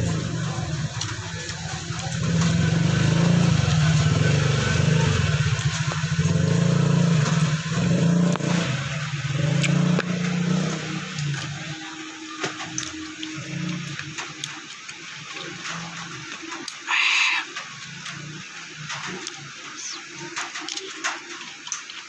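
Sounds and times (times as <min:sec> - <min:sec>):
small engine droning: 0:00.0 - 0:16.8.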